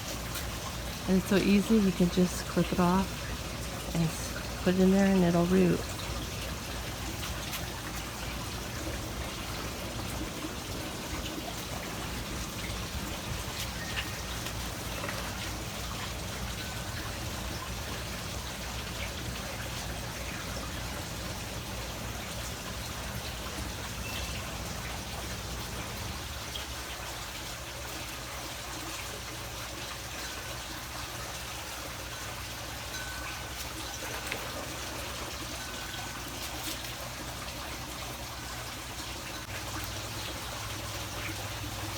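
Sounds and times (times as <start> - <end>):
water trickling: 0.0 - 41.9.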